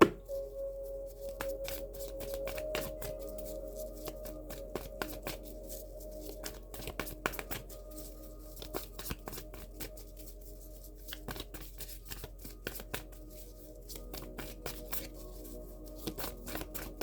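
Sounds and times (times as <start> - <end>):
soft background music: 0.0 - 17.0
cards being shuffled: 1.3 - 7.8, 8.6 - 10.3, 11.0 - 17.0.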